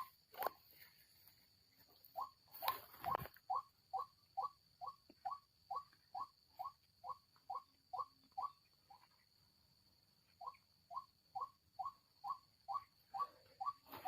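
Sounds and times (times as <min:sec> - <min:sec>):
rustles: 0:00.0 - 0:03.6, 0:13.1 - 0:14.0.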